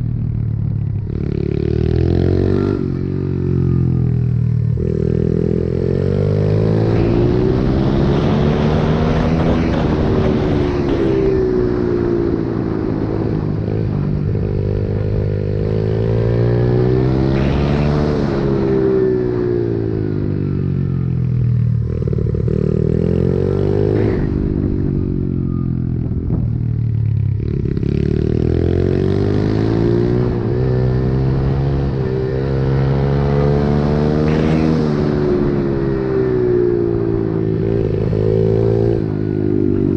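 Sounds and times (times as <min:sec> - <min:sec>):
pit bike engine revving: 0:04.8 - 0:11.8, 0:27.5 - 0:39.1.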